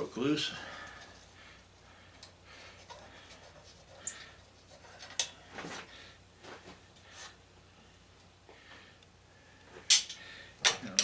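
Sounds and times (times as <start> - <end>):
hand tools clicking and scraping: 2.1 - 5.9.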